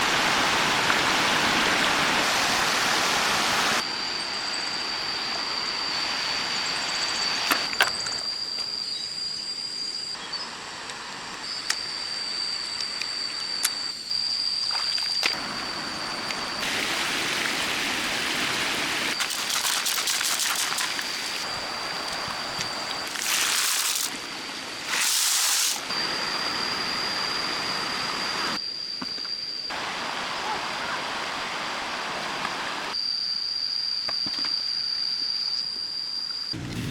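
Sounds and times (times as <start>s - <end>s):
steady high-pitched tone: 25.7s - 36.6s.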